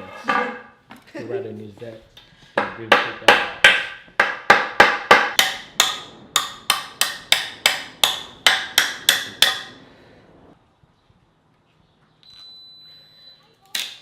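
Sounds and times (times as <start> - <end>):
hammer striking wood: 2.6 - 9.8.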